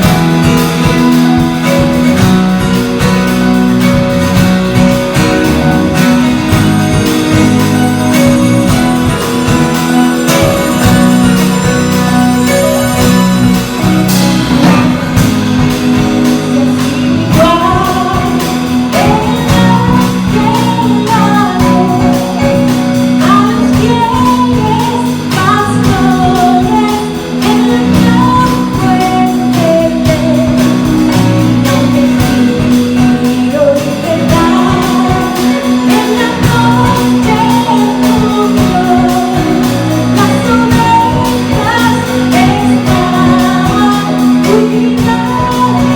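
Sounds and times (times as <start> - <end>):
held bass note: 0.0 - 26.2.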